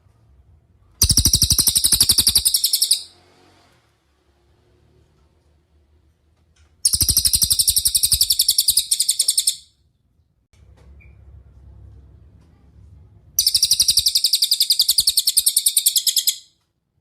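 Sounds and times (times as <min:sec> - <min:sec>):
faint low hum: 0:00.0 - 0:16.3
songbird rapid trill: 0:01.0 - 0:03.1, 0:06.9 - 0:09.7, 0:13.4 - 0:16.5.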